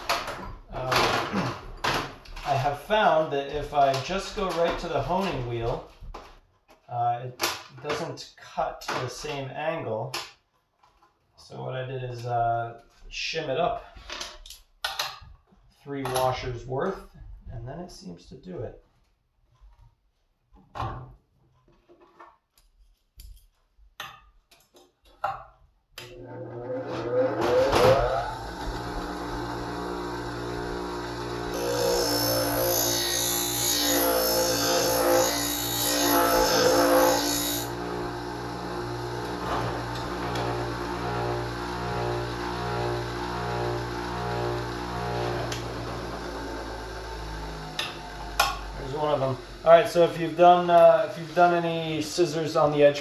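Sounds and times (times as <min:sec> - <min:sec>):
electric motor humming: 0:26.7 - 0:50.4.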